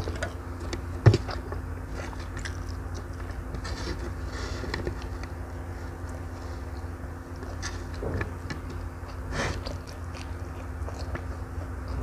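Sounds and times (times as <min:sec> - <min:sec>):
steady low hum: 0:00.0 - 0:12.0
chewing and wet mouth clicks: 0:02.2 - 0:03.4, 0:08.6 - 0:12.0.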